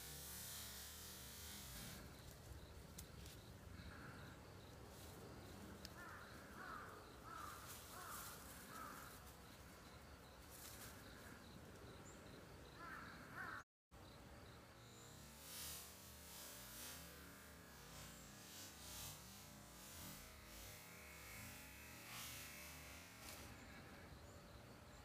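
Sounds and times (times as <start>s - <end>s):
faint bird calls: 2.1s - 13.6s.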